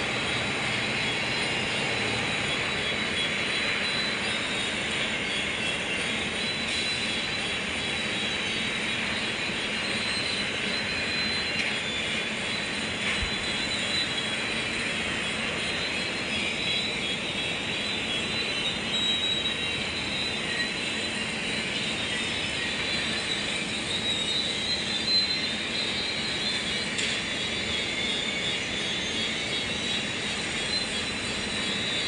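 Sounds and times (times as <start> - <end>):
diesel engine droning: 0.0 - 5.1.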